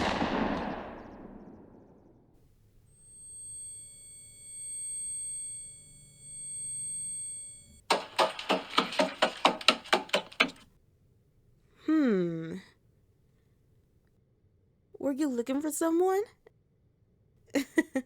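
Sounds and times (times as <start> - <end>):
high-pitched ringing tones: 2.8 - 7.8
fast sharp knocks: 7.8 - 10.6.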